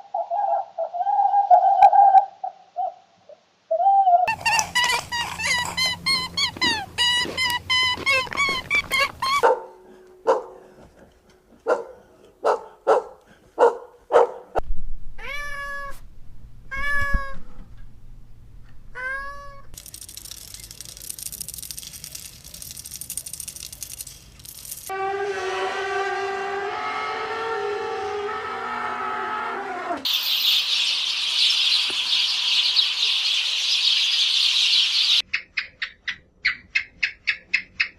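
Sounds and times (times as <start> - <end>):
cat meowing: 15.2 - 16.0, 16.7 - 17.4, 19.0 - 19.7.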